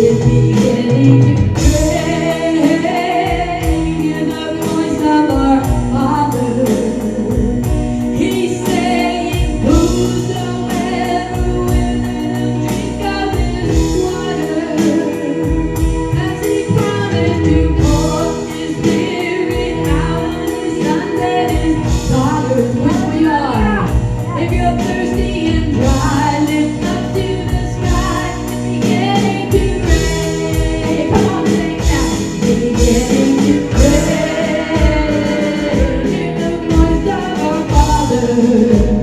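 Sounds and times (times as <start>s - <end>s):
band playing: 0.0s - 39.0s
steady drum beat: 0.0s - 39.0s
voices singing together: 0.0s - 39.0s.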